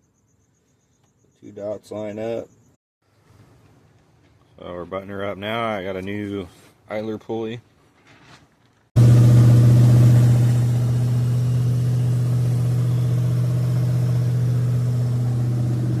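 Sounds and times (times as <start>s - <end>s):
engine idling: 9.0s - 16.0s.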